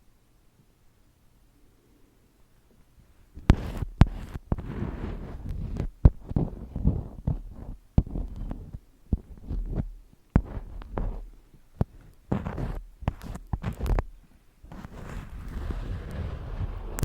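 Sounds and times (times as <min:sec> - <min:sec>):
close-up taps and soft thuds: 0:03.4 - 0:15.8.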